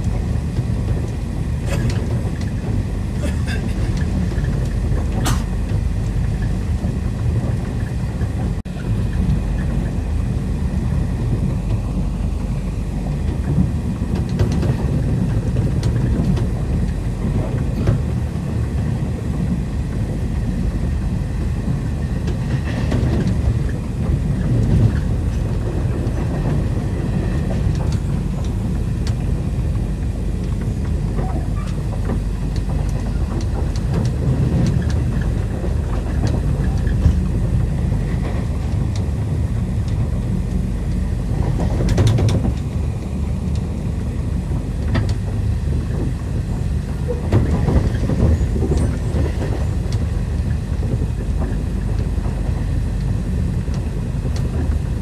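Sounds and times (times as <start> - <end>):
train rumbling: 0.0 - 55.0.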